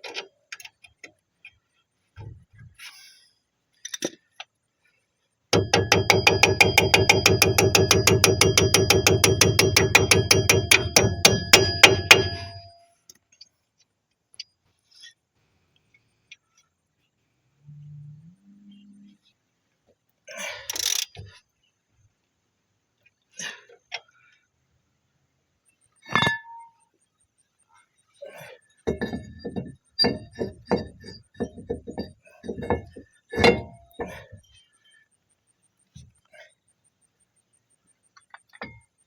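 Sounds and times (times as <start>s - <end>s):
hammer striking metal: 5.6s - 12.8s
metal tool clink with ring: 5.6s - 12.8s, 26.0s - 26.9s, 28.8s - 34.6s
quick metallic knocks and clicks: 5.6s - 12.8s, 28.9s - 34.4s.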